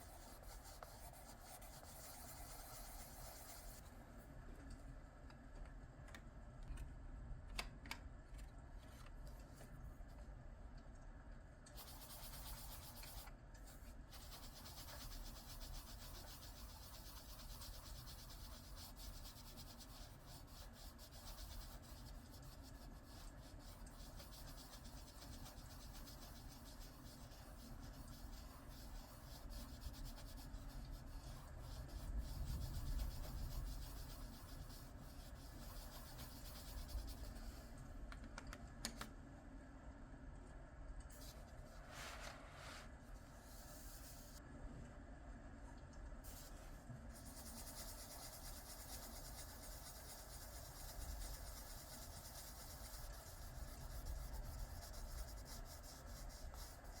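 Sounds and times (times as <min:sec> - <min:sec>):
coloured pencil shading on paper: 0:00.0 - 0:03.8, 0:11.8 - 0:13.3, 0:14.1 - 0:37.7, 0:47.1 - 0:57.0.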